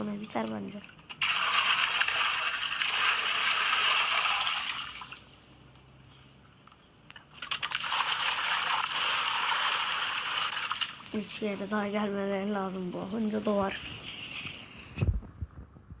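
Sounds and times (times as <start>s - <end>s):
water pouring and splashing: 0.2s - 5.3s, 7.4s - 11.3s.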